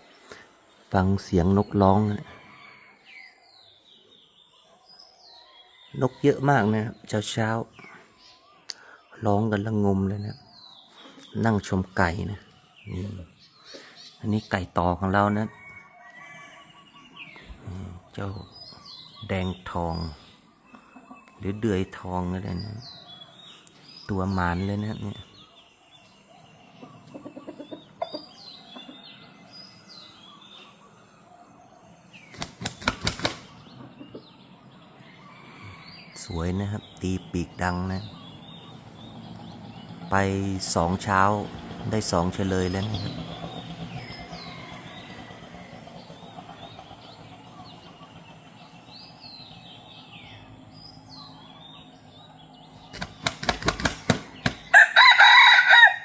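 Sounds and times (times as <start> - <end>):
birds chirping: 0.0 - 56.0
rooster crowing: 2.3 - 3.4, 54.5 - 56.0
rooster wings beating: 32.2 - 33.6, 52.8 - 55.8.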